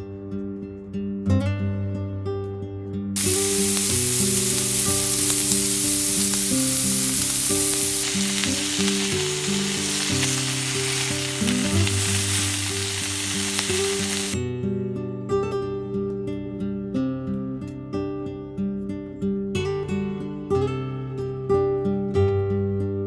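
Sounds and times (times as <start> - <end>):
soft acoustic guitar music: 0.8 - 4.2, 14.4 - 23.0
food sizzling in a hot pan: 3.2 - 14.4.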